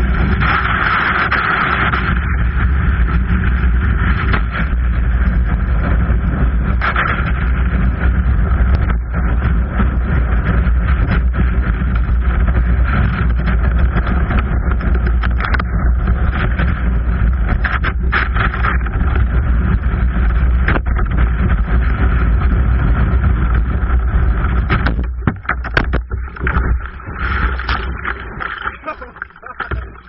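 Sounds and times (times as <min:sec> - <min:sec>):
whitewater roaring: 0:23.8 - 0:30.0.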